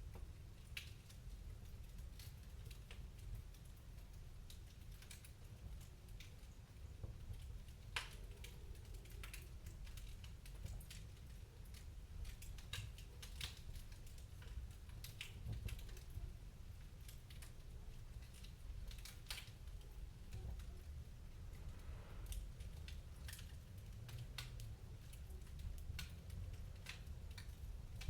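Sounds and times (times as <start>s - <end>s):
wood fire crackling: 0.0s - 28.0s
low steady rumble: 17.6s - 28.0s.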